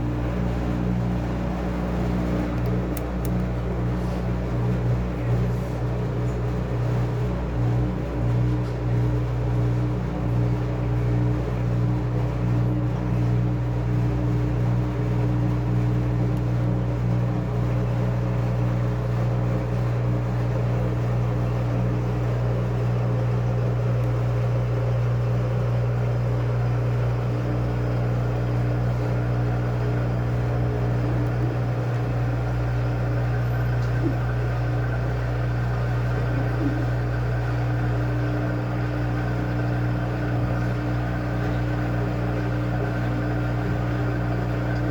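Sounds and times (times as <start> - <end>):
washing machine running: 0.0 - 44.9.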